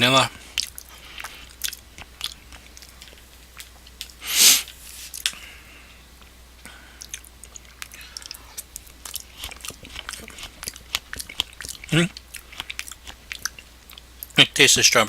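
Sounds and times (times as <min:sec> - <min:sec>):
wet chewing and lip-smacking: 0:00.5 - 0:04.2, 0:06.9 - 0:14.4
loud breathy noise: 0:05.3 - 0:07.0.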